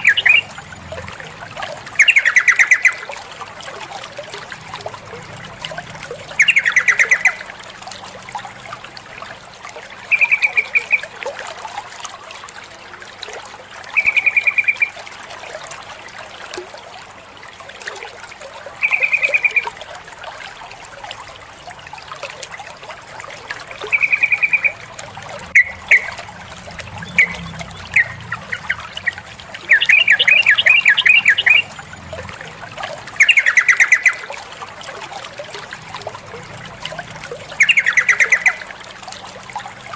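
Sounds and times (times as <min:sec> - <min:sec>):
bulbul chattering calls: 0:00.0 - 0:00.5, 0:02.0 - 0:03.0, 0:06.4 - 0:07.4, 0:10.1 - 0:11.0, 0:23.9 - 0:24.8, 0:25.5 - 0:26.2, 0:27.0 - 0:31.7, 0:33.2 - 0:34.2, 0:37.6 - 0:38.6.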